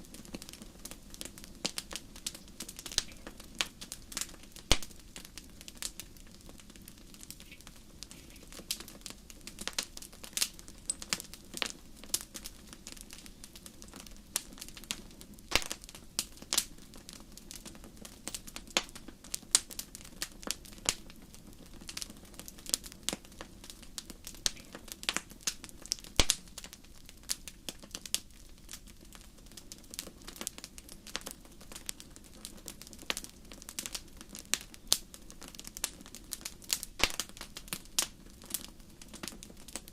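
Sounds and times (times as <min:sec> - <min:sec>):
low rumble of flames: 0:00.0 - 0:39.9
wood fire popping and snapping: 0:00.0 - 0:39.9.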